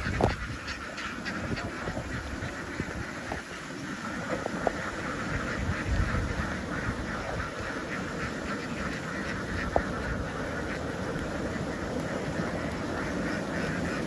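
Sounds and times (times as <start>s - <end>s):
ducks quacking: 0.0s - 14.0s.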